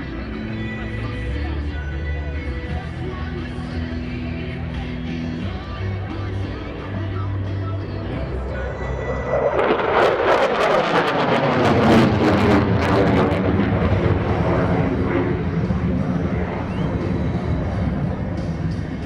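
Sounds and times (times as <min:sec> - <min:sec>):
crackling jet roar: 0:06.6 - 0:19.0.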